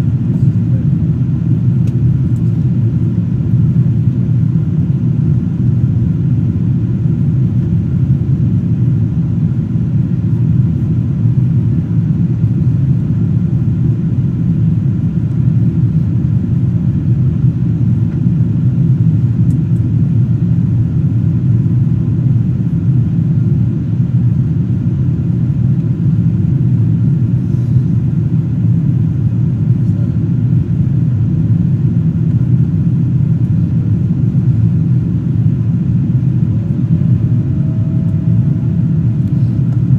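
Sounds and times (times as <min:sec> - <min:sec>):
airplane cabin drone: 0:00.0 - 0:39.9.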